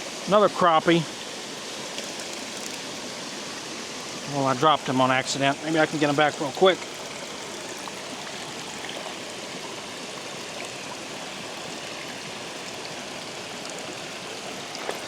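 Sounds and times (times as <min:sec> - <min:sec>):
water rushing through spillway: 0:00.0 - 0:15.0.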